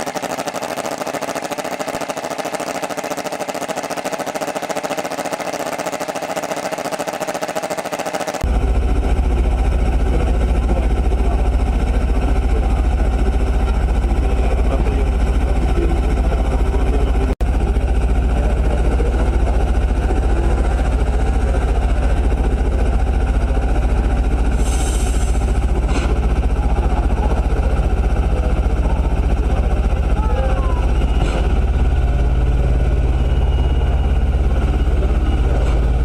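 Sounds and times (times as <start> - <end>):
engine low rumble: 8.4 - 36.0.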